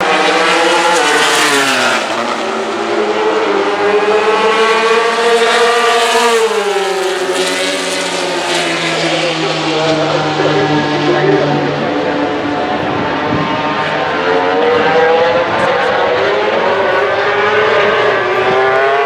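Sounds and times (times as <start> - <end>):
racing motorcycles passing at full throttle: 0.0 - 19.0.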